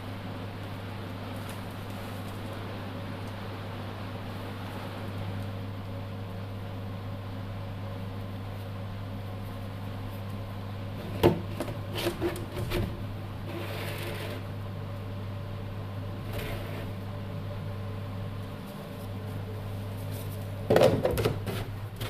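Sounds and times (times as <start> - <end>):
electric fan motor humming: 0.0 - 22.0.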